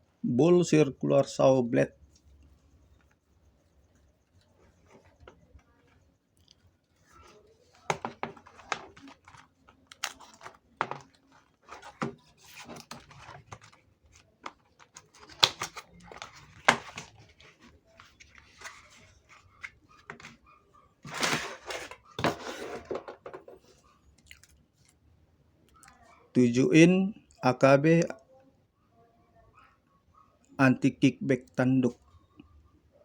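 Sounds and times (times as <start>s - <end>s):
packaging rustling: 7.2s - 20.4s
packaging clicks and taps: 7.9s - 19.0s.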